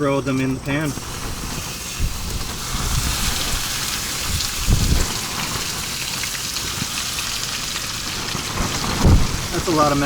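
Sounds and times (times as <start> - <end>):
wind buffeting microphone: 0.6 - 10.0
potatoes sizzling in frying pan: 0.9 - 10.0.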